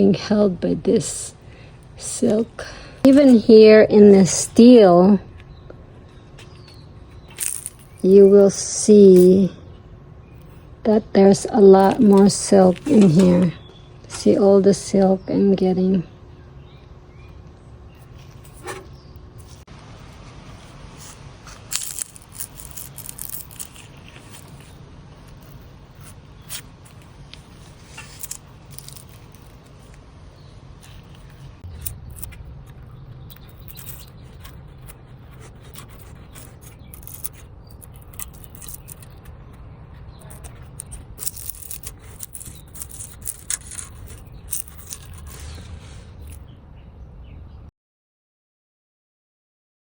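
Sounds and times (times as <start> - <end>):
steady low rumble: 0.0 - 47.7
hands scraping and tearing silk: 6.6 - 8.5, 20.6 - 29.9, 33.3 - 39.3, 40.1 - 46.4.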